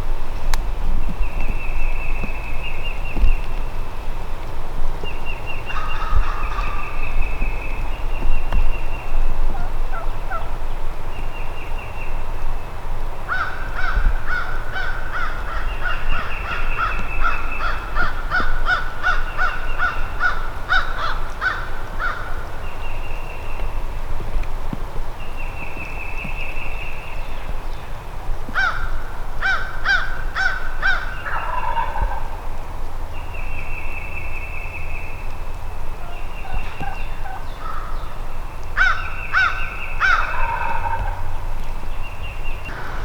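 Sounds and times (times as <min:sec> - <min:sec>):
turkey gobble: 0:09.5 - 0:10.5, 0:30.9 - 0:32.4, 0:36.0 - 0:37.5, 0:39.4 - 0:41.4
turkey yelps: 0:29.5 - 0:32.3, 0:36.0 - 0:37.8, 0:38.8 - 0:41.3.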